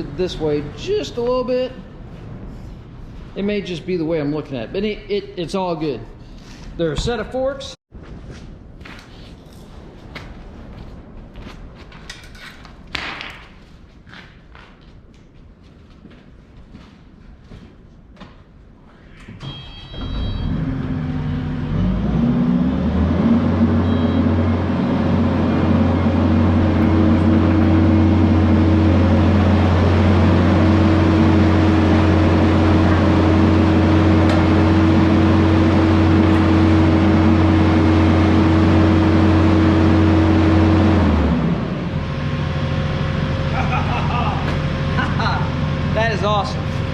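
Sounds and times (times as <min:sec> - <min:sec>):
short beep: 0:19.4 - 0:20.7, 0:23.8 - 0:24.6
diesel engine starting and revving: 0:19.4 - 0:46.9.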